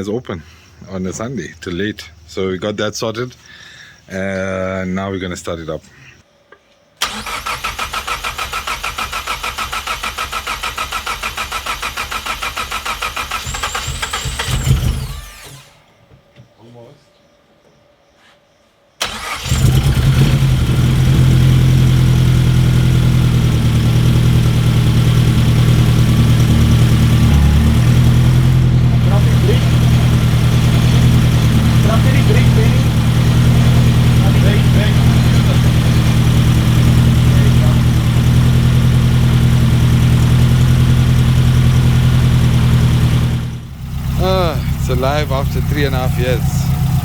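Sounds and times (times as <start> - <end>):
car engine starting and idling: 7.0 - 15.8, 19.0 - 47.0.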